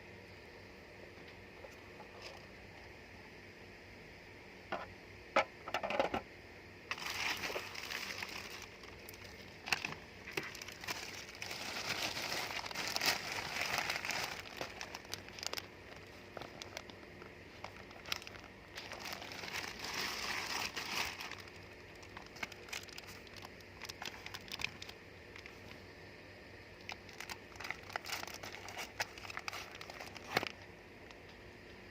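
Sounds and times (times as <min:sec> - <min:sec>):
packaging crinkling and rustling: 0:06.9 - 0:25.8, 0:26.8 - 0:31.4.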